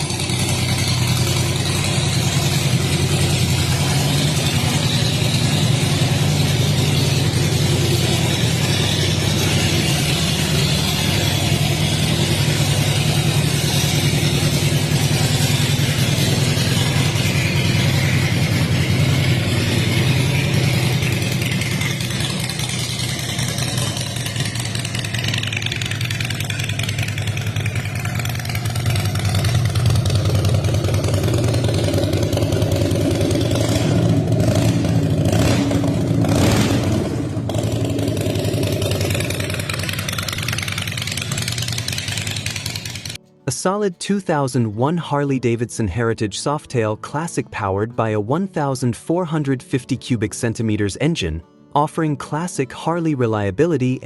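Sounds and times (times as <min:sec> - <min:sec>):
motorcycle engine idling: 0:00.0 - 0:43.2.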